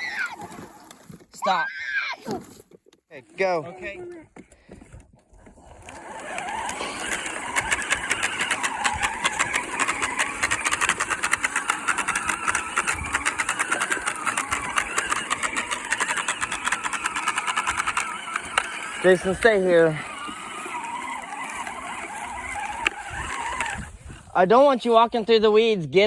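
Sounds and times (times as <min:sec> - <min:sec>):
toy tractor motor whining: 0:00.0 - 0:25.3
fast continuous rattle: 0:06.0 - 0:24.3.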